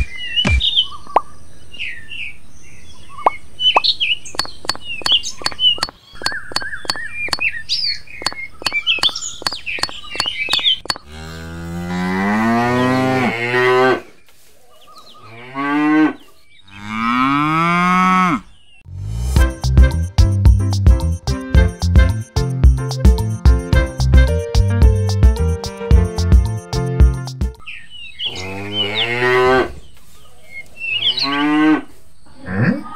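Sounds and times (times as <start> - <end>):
birds chirping: 0.0 - 18.9, 27.6 - 32.9
sharp clicks: 3.8 - 7.5, 8.2 - 11.0
cow mooing: 11.0 - 14.1, 28.3 - 29.8.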